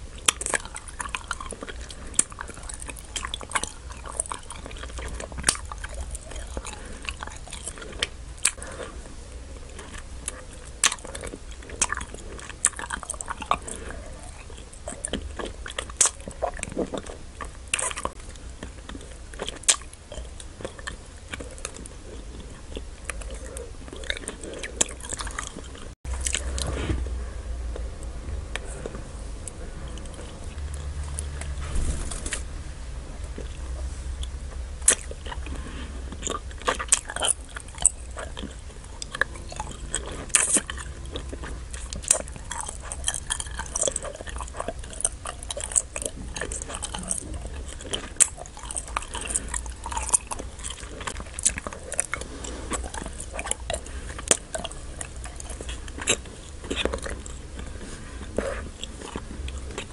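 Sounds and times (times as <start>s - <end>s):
chewing wax candy: 0.0s - 31.6s, 33.3s - 59.9s
low rumble: 25.2s - 36.7s.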